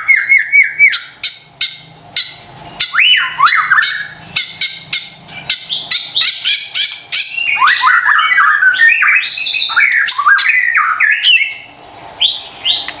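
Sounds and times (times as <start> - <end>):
songbird singing clicks and whistles: 0.2 - 13.0.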